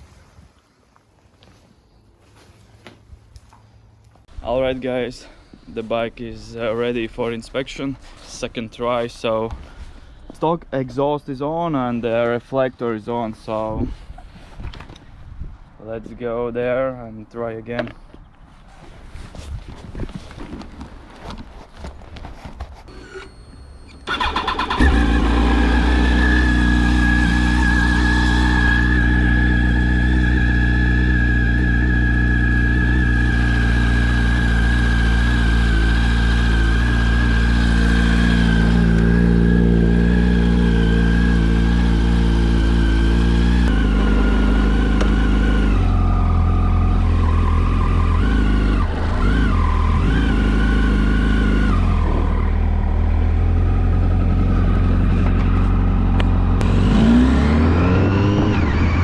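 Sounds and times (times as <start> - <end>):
motorcycle engine revving: 24.1 - 59.0.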